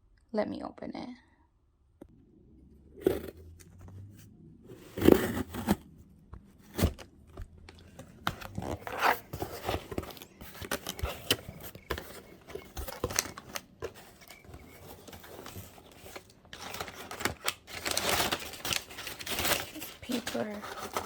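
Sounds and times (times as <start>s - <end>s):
cardboard box clicks and scrapes: 4.8s - 5.9s, 7.9s - 21.0s
packing paper rustling: 7.8s - 21.0s.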